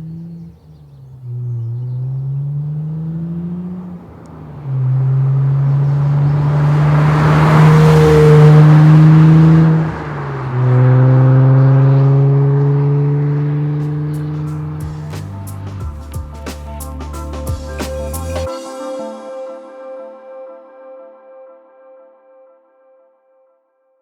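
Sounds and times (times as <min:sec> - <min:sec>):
car engine accelerating: 0:00.0 - 0:18.5.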